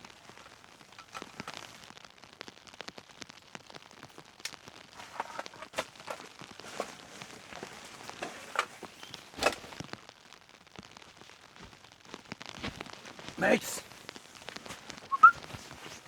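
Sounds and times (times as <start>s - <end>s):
rain tapping on a tent: 0.0s - 16.0s
faint hiss: 11.0s - 16.0s.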